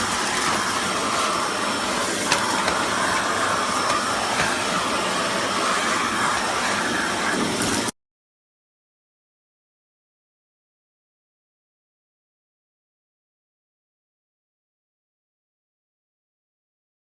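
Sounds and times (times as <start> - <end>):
vacuum cleaner running: 0.0 - 7.9.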